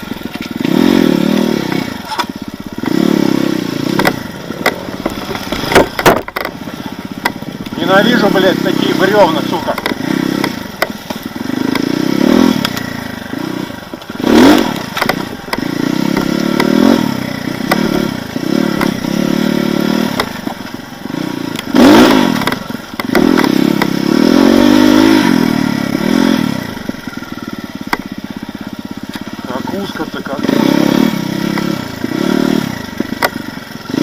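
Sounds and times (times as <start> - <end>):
motorcycle engine revving: 0.0 - 34.0
knocks and scraping clatter: 3.9 - 7.8, 9.6 - 11.9, 13.8 - 16.9, 17.6 - 19.0, 21.5 - 24.0.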